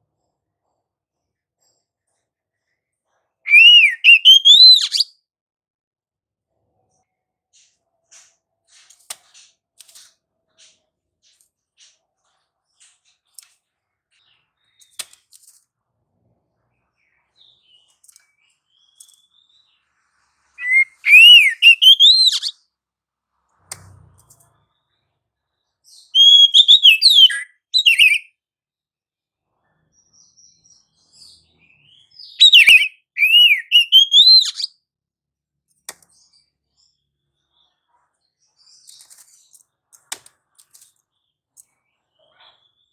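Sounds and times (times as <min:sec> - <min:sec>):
bird whistled song: 0:03.5 - 0:05.1, 0:20.6 - 0:22.6, 0:25.9 - 0:28.3, 0:31.6 - 0:34.7.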